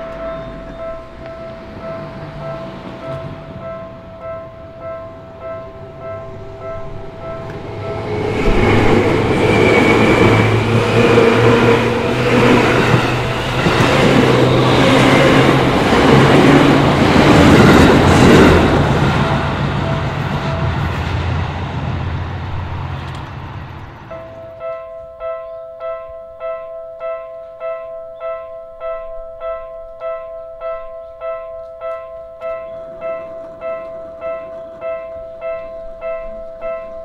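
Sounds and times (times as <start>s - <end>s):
level crossing warning bell: 0.0s - 21.0s, 24.1s - 37.0s
electric train rumble: 0.0s - 28.0s.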